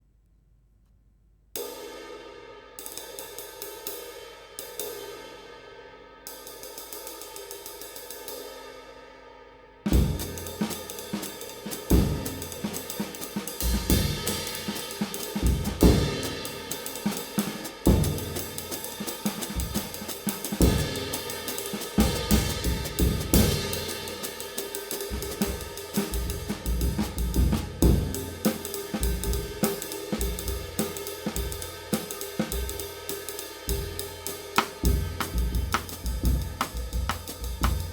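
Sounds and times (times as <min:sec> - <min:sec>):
drum kit groove: 0:09.9 - 0:37.9.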